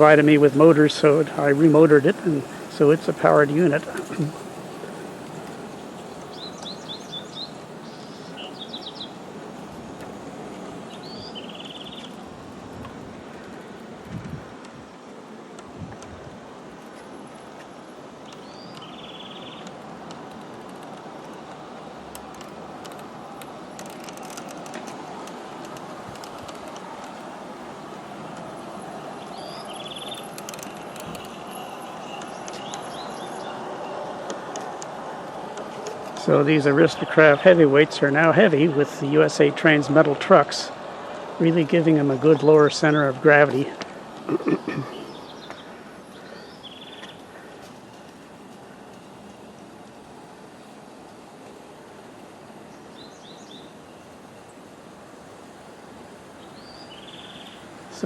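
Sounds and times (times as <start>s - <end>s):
songbird chirping and trilling: 0.0s - 9.4s, 10.6s - 12.2s, 18.2s - 19.8s, 28.8s - 34.8s, 35.9s - 40.4s, 44.3s - 47.6s, 52.7s - 54.1s, 56.3s - 58.0s
sharp clicks of wheels: 0.0s - 14.8s, 16.8s - 42.2s
model train wheels rumbling: 0.0s - 52.7s.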